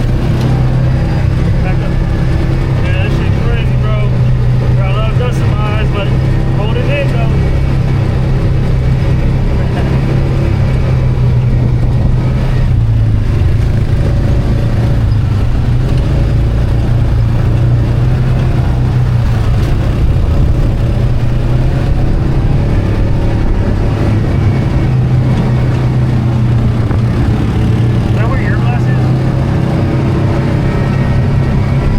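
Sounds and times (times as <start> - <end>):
atv engine running: 0.0 - 31.9.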